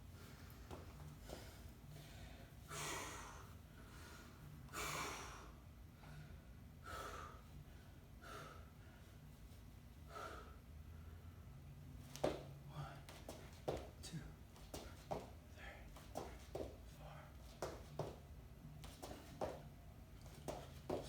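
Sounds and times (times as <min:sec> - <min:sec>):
person breathing hard: 0:01.2 - 0:09.2, 0:10.0 - 0:11.2.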